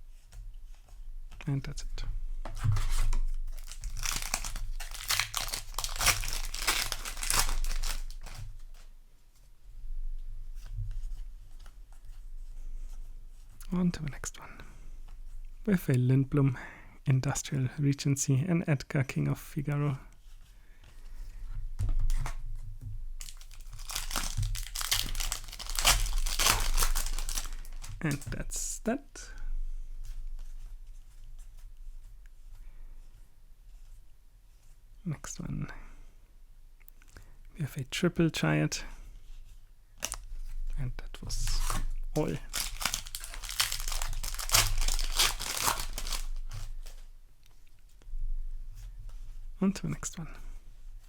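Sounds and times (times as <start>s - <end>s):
foil wrapper crinkling and tearing: 2.7s - 8.8s, 23.2s - 28.3s, 41.3s - 47.0s.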